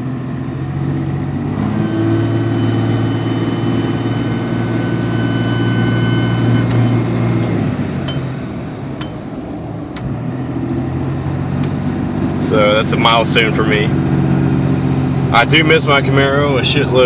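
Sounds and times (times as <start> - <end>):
diesel truck engine revving: 0.0 - 17.0
turbo whistle: 1.8 - 7.8.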